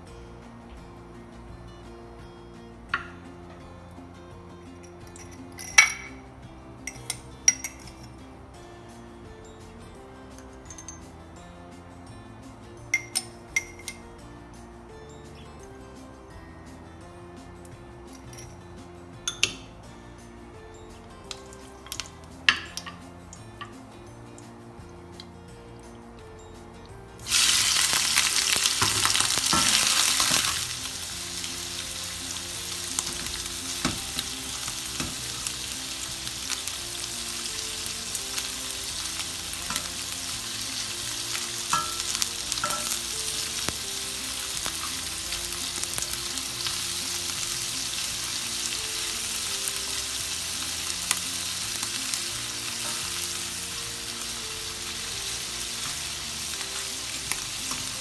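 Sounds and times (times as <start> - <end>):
metal tongs clicking against pan: 21.3 - 23.8, 39.7 - 40.0, 41.7 - 43.0
prawns sizzling in hot oil: 27.2 - 58.0.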